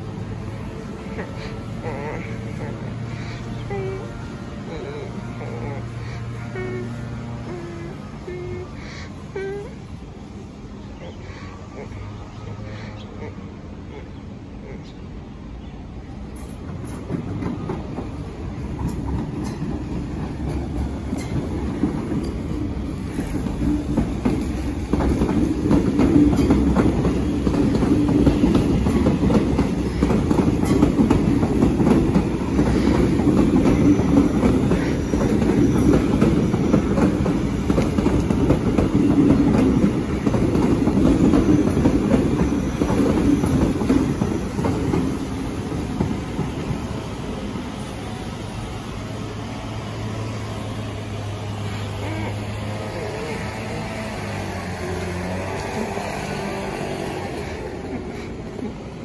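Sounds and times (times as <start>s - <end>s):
train wheels rumbling and clicking: 15.9s - 59.0s.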